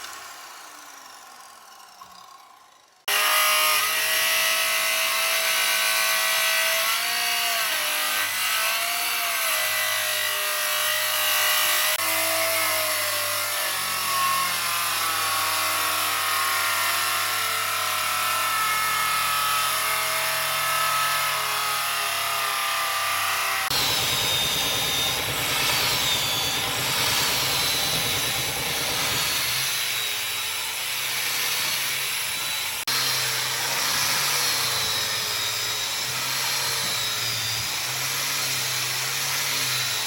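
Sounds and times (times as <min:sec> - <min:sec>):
power tool cutting wood: 0:00.0 - 0:40.0
machine winding down: 0:23.7 - 0:29.7.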